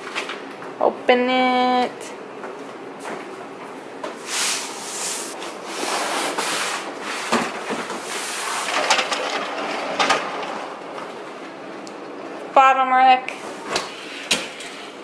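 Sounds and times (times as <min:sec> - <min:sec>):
dishwasher racks sliding: 0:04.2 - 0:10.9.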